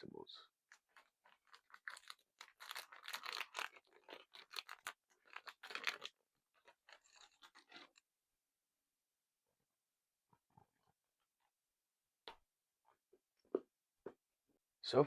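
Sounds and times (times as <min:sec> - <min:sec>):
wrapper crinkling and tearing: 0:00.7 - 0:08.0.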